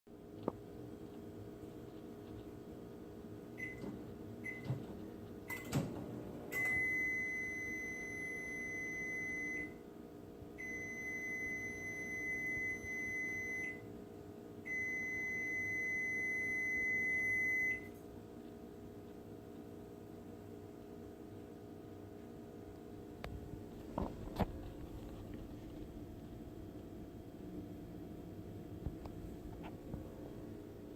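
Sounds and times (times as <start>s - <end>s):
microwave beeps: 3.6s - 9.9s, 10.6s - 13.9s, 14.6s - 18.0s.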